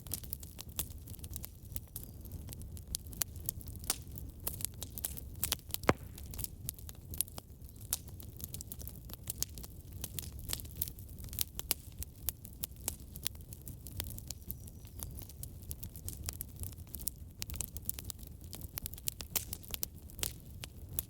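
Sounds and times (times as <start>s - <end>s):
fire crackling and snapping: 0.0s - 21.0s
low rumble of flames: 0.0s - 21.0s
loud pop of fire: 5.7s - 6.7s.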